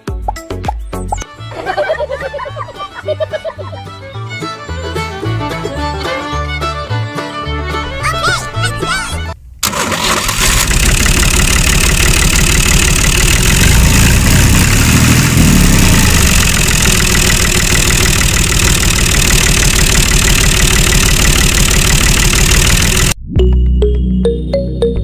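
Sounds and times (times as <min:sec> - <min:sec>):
small engine rattling: 0:09.6 - 0:23.2.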